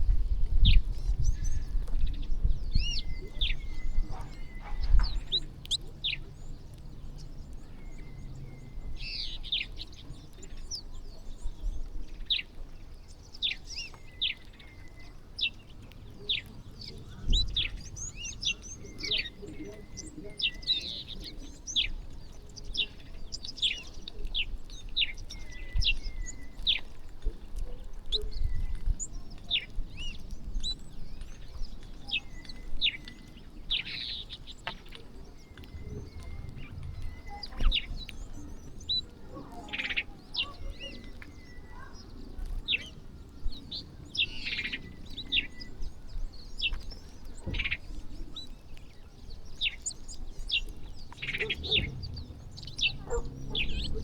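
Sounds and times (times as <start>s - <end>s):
small birds chirping: 0.0s - 54.0s
low rumble: 35.4s - 39.3s, 50.4s - 54.0s.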